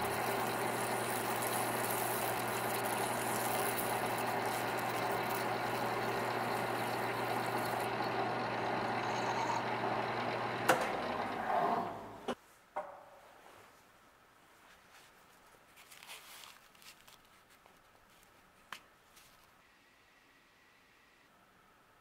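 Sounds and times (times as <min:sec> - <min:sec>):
lathe humming: 0:00.0 - 0:12.4.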